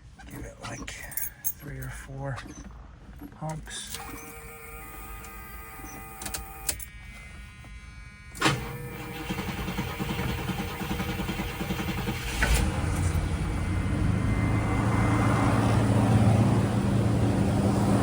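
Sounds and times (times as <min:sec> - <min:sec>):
car engine starting and idling: 0:08.4 - 0:18.0.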